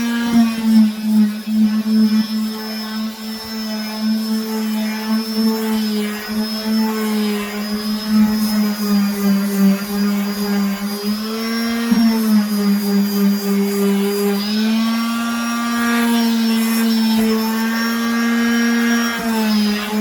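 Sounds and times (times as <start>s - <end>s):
electric sander on wood: 0.0s - 20.0s.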